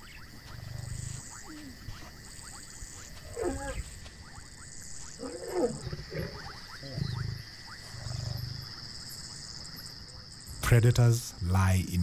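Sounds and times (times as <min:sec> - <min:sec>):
lions calling: 0:00.0 - 0:04.0, 0:05.0 - 0:09.0
crickets chirring: 0:00.0 - 0:12.0
lion grunts: 0:05.2 - 0:08.7.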